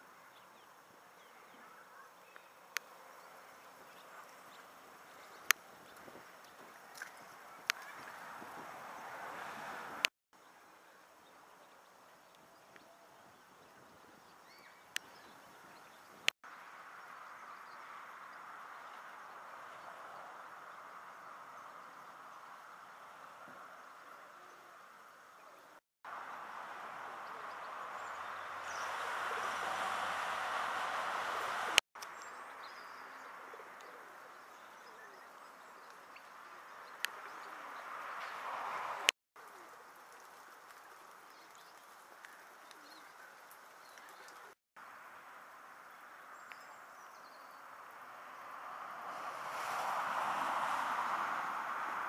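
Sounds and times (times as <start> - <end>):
birds chirping: 0.0 - 44.6
steady rushing noise: 26.2 - 31.8.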